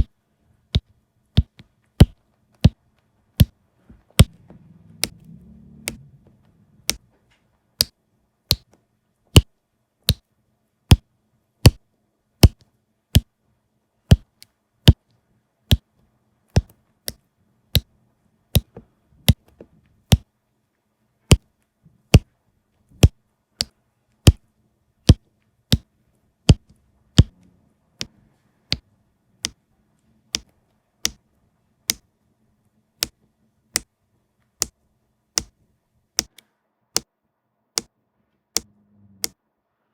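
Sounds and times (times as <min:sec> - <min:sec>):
sharp taps of resin diamonds: 0:00.0 - 0:04.4, 0:07.8 - 0:10.3, 0:12.4 - 0:13.3, 0:14.1 - 0:17.9, 0:18.5 - 0:20.3, 0:21.3 - 0:22.3, 0:22.9 - 0:24.4, 0:25.0 - 0:27.3, 0:28.0 - 0:29.6, 0:30.3 - 0:32.1, 0:33.0 - 0:37.1.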